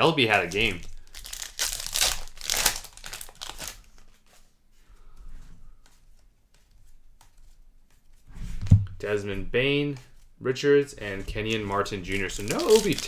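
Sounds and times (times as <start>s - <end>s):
foil wrapper crinkling and tearing: 0.2s - 4.2s, 11.2s - 13.0s
cards rustling and clicking: 0.2s - 8.2s, 11.0s - 13.0s.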